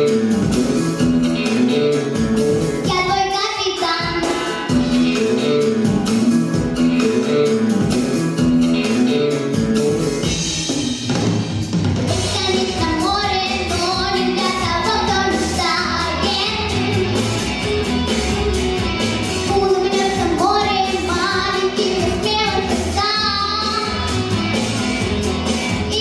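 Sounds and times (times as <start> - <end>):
backing track with drums and bass: 0.0 - 26.0
young woman singing pop song: 2.9 - 4.8, 19.5 - 24.2.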